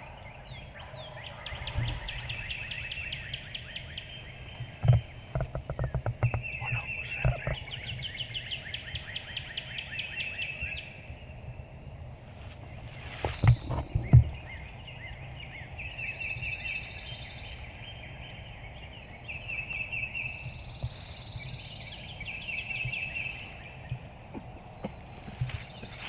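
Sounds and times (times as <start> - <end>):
low thumps: 0.0 - 7.7, 13.1 - 14.7
songbirds trilling: 0.0 - 26.0
turkey gobbling: 6.5 - 7.8.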